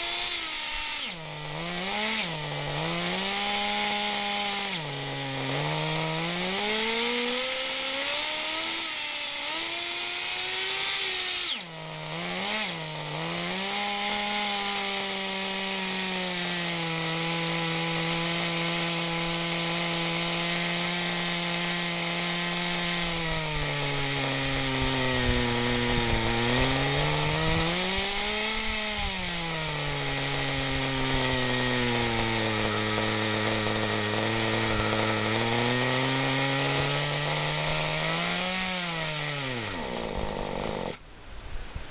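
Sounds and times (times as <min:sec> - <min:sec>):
small nitro engine buzzing: 0:00.0 - 0:41.0.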